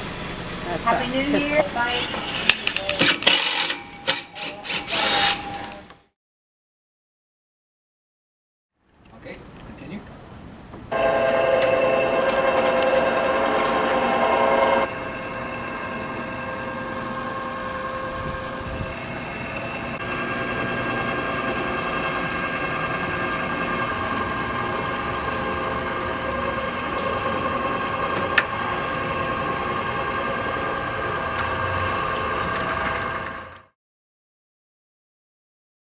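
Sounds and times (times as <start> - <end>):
motorised shutter humming: 11.0 - 33.7.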